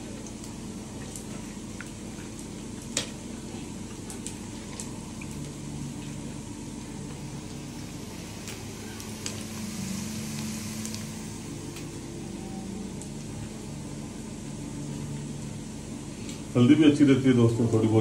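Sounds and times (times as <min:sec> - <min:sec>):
food sizzling in oil: 0:07.3 - 0:12.0.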